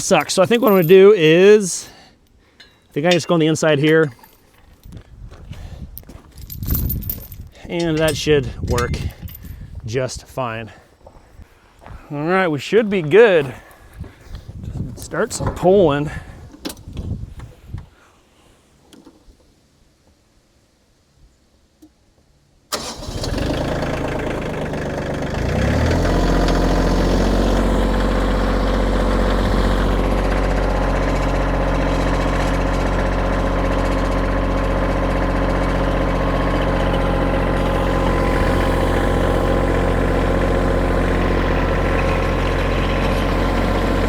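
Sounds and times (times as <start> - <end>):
diesel tractor engine starting: 7.6 - 9.4, 22.7 - 44.0.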